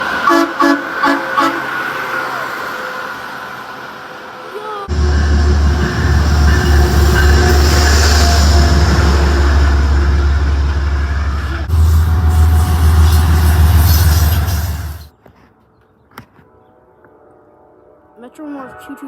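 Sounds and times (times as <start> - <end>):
train rumbling past: 0.0 - 15.1.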